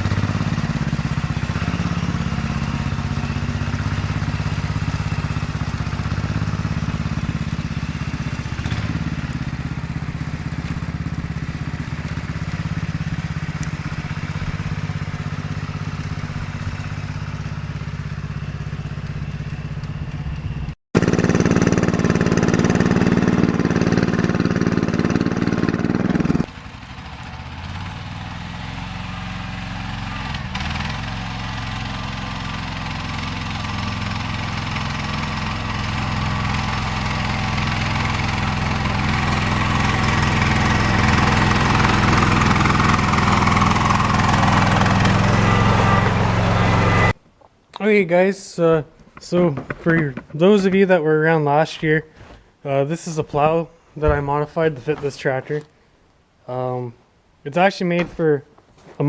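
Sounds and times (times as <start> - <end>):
garden tractor engine running: 0.0 - 47.2, 48.7 - 55.7.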